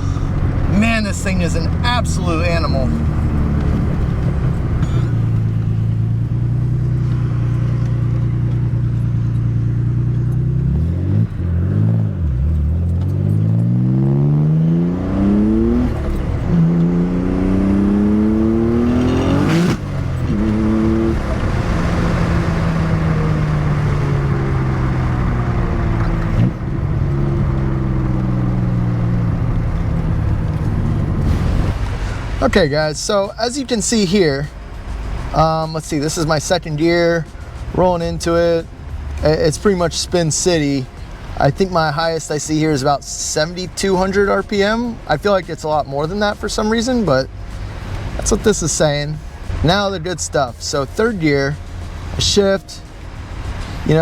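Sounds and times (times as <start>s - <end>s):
car engine accelerating hard: 0.0s - 54.0s
sharp exhaust crack: 27.4s - 33.2s.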